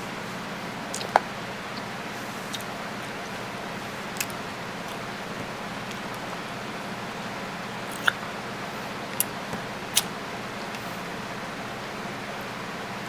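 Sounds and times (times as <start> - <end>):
wet mouth clicks: 0.9 - 3.4, 4.2 - 6.5, 7.9 - 8.3, 9.1 - 10.2.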